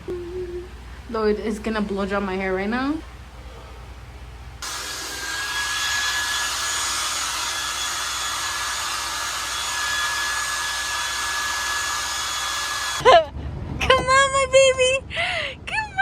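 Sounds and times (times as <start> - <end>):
hair dryer blowing air: 4.6 - 13.0.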